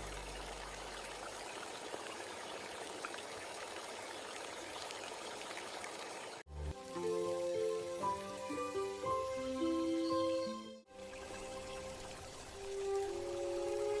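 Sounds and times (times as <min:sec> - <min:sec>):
low music tone: 0:00.0 - 0:01.1, 0:06.5 - 0:14.0
steady rain hiss: 0:00.0 - 0:14.0.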